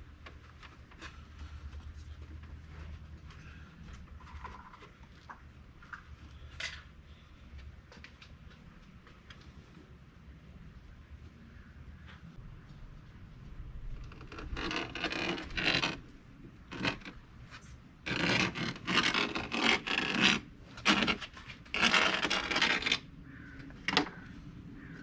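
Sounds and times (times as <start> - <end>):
carpet being cut scratching: 14.0 - 16.0, 16.7 - 17.2, 18.1 - 23.0.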